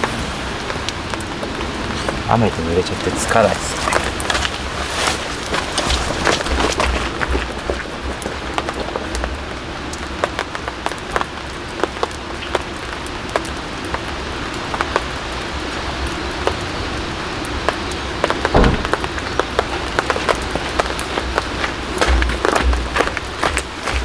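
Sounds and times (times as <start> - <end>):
raindrops ticking on a surface: 0.0 - 24.0
steady rain: 0.0 - 24.0
low thud: 18.5 - 19.2.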